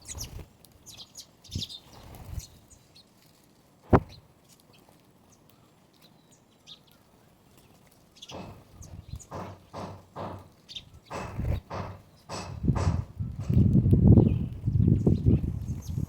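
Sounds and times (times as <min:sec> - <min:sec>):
small birds chirping: 0:00.0 - 0:16.0
sharp loud knock: 0:03.9 - 0:04.1, 0:08.3 - 0:13.7
soft thumps: 0:03.9 - 0:04.1, 0:08.3 - 0:13.7.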